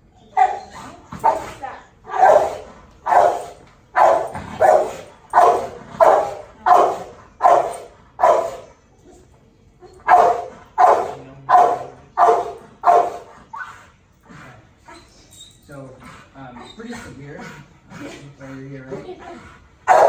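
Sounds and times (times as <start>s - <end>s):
dog barking rapidly: 0.4s - 8.7s, 10.0s - 13.4s.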